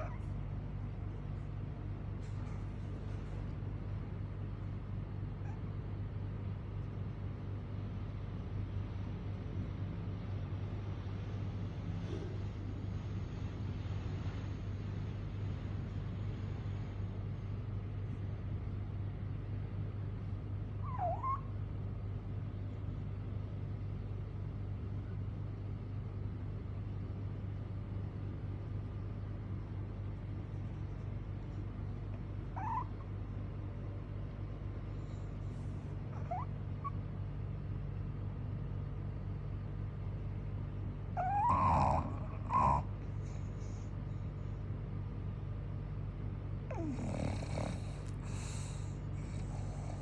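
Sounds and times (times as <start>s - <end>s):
dog snoring: 0.0s - 0.3s, 20.8s - 21.5s, 32.5s - 33.1s, 34.9s - 37.0s, 41.1s - 44.2s, 46.7s - 50.0s
squeaky whimpers: 0.0s - 0.3s, 20.8s - 21.5s, 32.5s - 33.1s, 36.1s - 37.0s, 41.2s - 42.8s.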